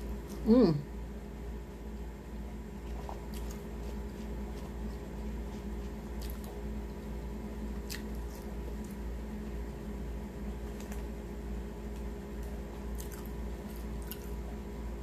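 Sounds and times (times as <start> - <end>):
steady low hum: 0.0 - 15.0
wet chewing of fries: 2.8 - 9.6, 10.6 - 14.6.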